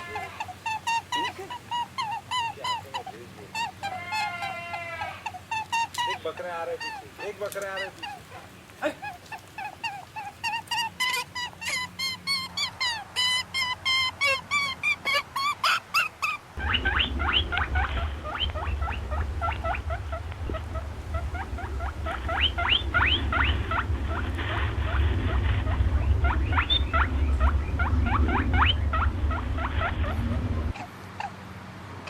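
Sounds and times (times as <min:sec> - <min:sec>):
small animal squeaking: 0:00.0 - 0:31.3
steady low hum: 0:16.5 - 0:31.2.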